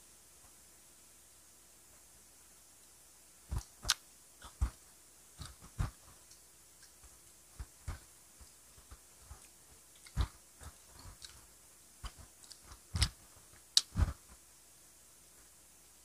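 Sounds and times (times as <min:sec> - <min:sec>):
sharp mouth clicks: 0:03.5 - 0:04.8
person biting and chewing: 0:09.4 - 0:14.2.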